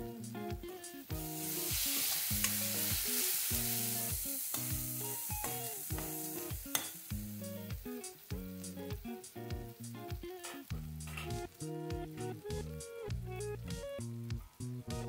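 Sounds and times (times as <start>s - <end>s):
background music: 0.0s - 15.0s
tomato masala sizzling: 0.0s - 15.0s
metal spatula scraping: 5.4s - 7.0s.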